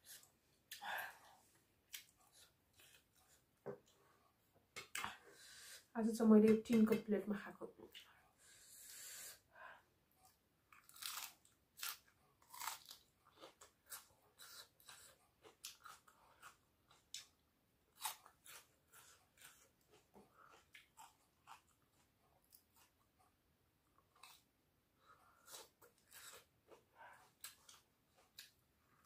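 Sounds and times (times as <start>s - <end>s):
chewing crisp cabbage: 1.8s - 4.0s, 10.2s - 29.0s.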